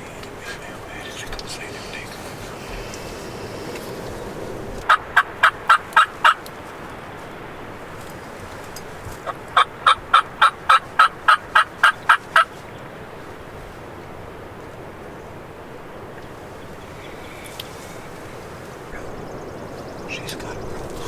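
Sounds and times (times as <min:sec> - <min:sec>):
wind noise: 0:00.0 - 0:21.0
turkey yelping: 0:02.3 - 0:06.5, 0:09.2 - 0:12.6.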